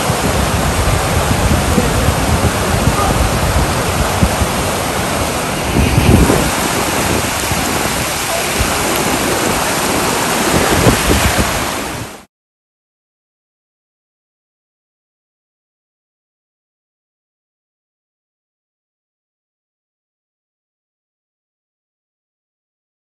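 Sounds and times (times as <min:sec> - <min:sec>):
wind buffeting microphone: 0:00.0 - 0:12.2
flowing water rushing: 0:00.0 - 0:12.3.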